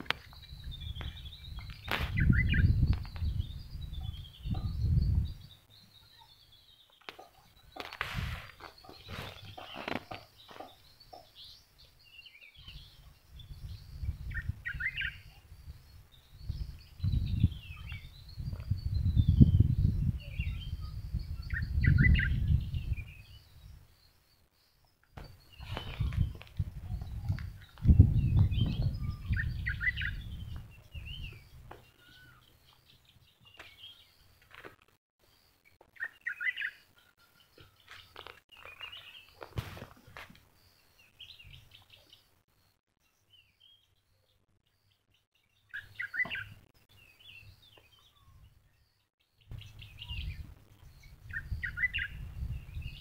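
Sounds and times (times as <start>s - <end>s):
low rumble on microphone: 0.0s - 5.6s, 12.7s - 23.8s, 25.2s - 32.4s, 49.5s - 53.0s
small birds chirping: 0.0s - 53.0s.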